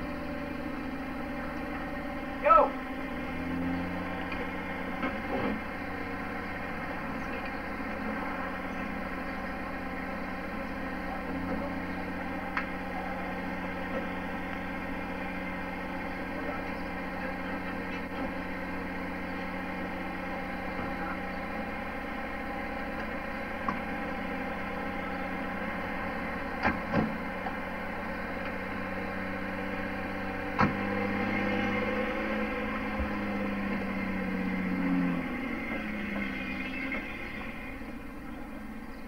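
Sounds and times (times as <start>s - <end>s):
car engine idling: 0.0s - 39.0s
car doors shutting: 26.6s - 27.2s, 30.5s - 31.0s.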